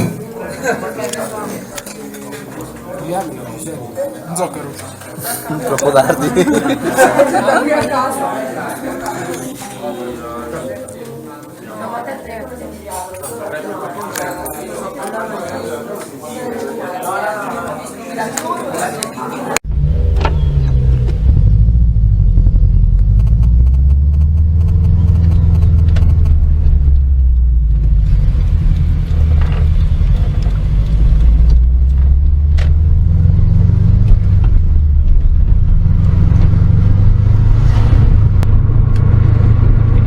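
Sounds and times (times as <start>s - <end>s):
car engine drone: 19.6s - 40.0s
road rumble: 19.6s - 40.0s.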